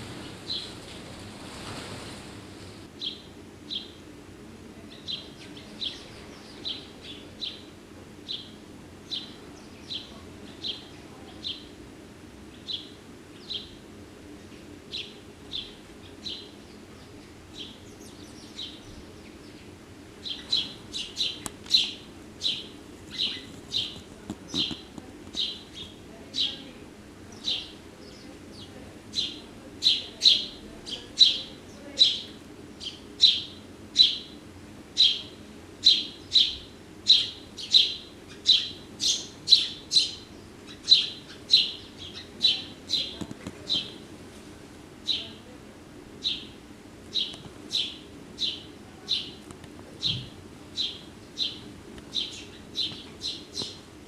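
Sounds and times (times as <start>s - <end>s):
small songbird chirping: 3.0s - 4.0s, 4.9s - 11.7s, 12.5s - 13.8s, 14.4s - 26.7s, 35.0s - 44.0s, 46.2s - 49.4s, 50.0s - 53.8s.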